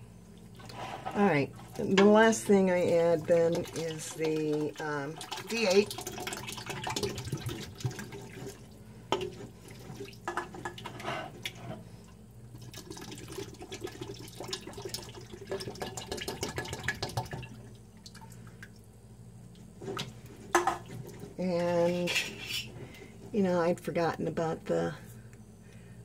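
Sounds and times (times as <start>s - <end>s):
juice pouring into a pot: 2.9s - 11.6s, 12.5s - 18.6s.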